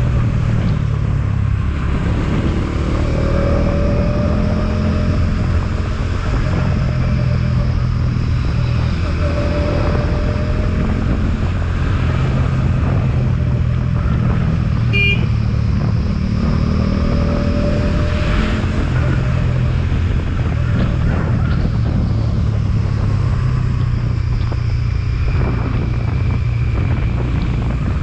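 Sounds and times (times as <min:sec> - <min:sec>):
motorcycle engine running: 0:00.0 - 0:28.0
wind rushing over microphone: 0:00.0 - 0:28.0
horn beep: 0:14.9 - 0:15.4.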